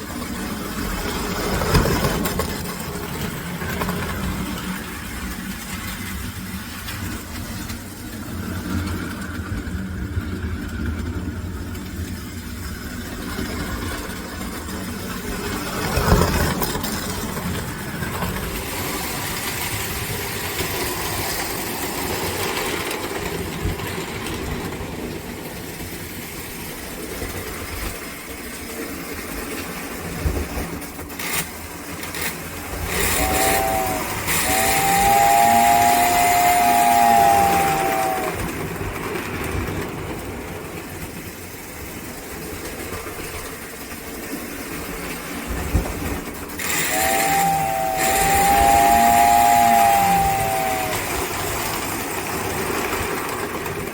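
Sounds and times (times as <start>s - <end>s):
wheels clattering on rail: 0.0s - 53.9s
electric motor hum: 33.0s - 38.4s, 46.6s - 51.2s.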